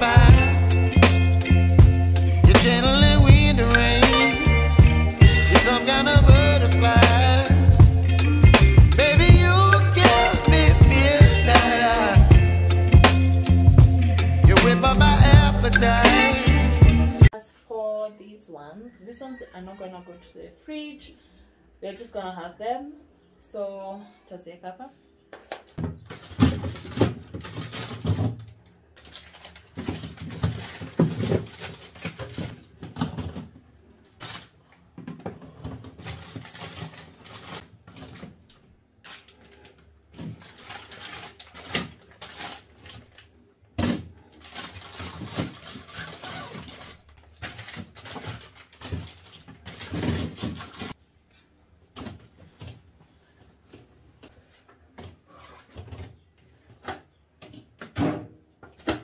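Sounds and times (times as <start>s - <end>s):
groceries rustling and knocking: 25.4s - 51.0s.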